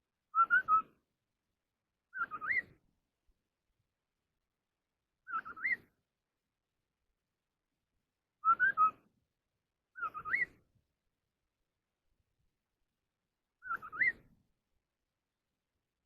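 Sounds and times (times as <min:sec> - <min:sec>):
bird whistling song: 0:00.3 - 0:01.0, 0:02.1 - 0:02.8, 0:05.2 - 0:06.0, 0:08.4 - 0:09.1, 0:09.9 - 0:10.7, 0:13.6 - 0:14.4.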